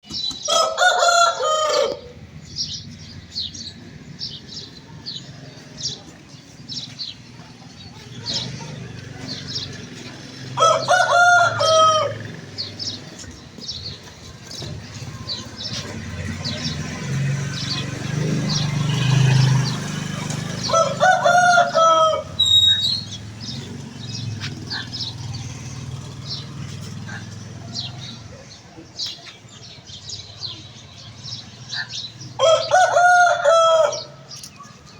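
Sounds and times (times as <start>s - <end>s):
rooster crowing: 0.5s - 2.1s, 10.5s - 12.4s, 20.4s - 23.0s, 32.4s - 34.3s
small birds chirping: 2.0s - 34.9s.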